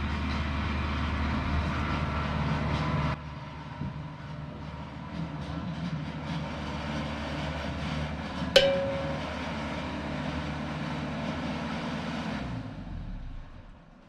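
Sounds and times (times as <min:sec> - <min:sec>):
sharp metallic clank: 0:08.6 - 0:09.8.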